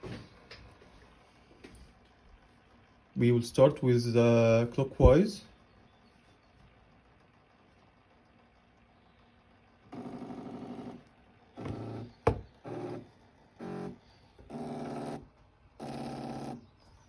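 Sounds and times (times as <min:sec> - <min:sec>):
stepper motor humming: 0:06.8 - 0:17.0.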